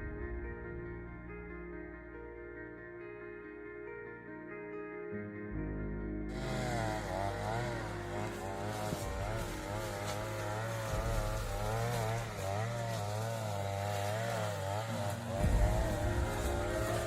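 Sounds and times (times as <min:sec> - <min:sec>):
small petrol engine revving: 0:06.3 - 0:17.0.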